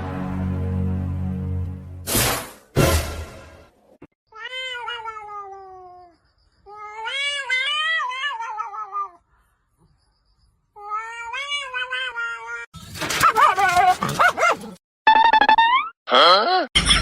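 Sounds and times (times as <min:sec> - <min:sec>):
cat meowing: 0:04.3 - 0:06.1.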